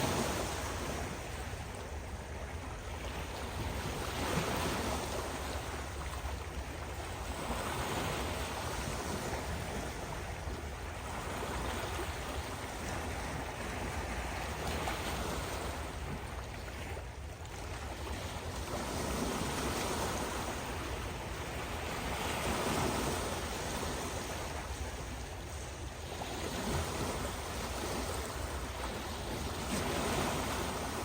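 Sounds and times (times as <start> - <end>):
waves breaking: 0.0 - 31.0.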